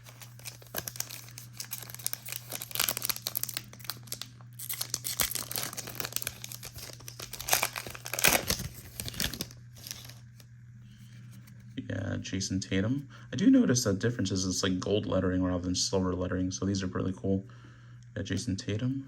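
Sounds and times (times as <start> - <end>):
plastic wrapper crinkling and tearing: 0.0 - 10.4.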